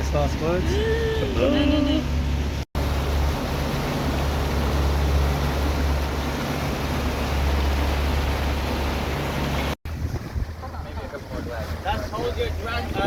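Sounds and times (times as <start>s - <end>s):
boat engine rumble: 0.0s - 13.0s
rush of wind and water: 0.0s - 13.0s.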